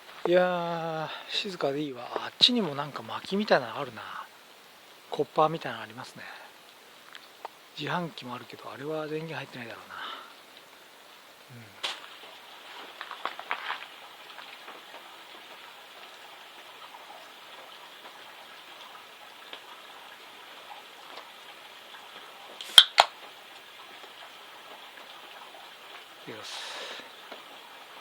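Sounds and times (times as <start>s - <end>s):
light rain pattering: 0.0s - 28.0s.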